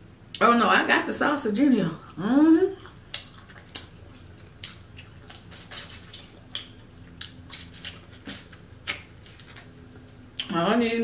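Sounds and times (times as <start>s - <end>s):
wet chewing with lip smacks: 2.8s - 10.5s.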